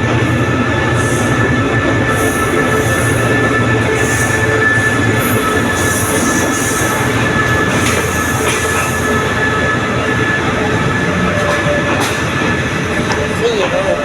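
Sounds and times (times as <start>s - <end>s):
train rumbling past: 0.0s - 14.0s.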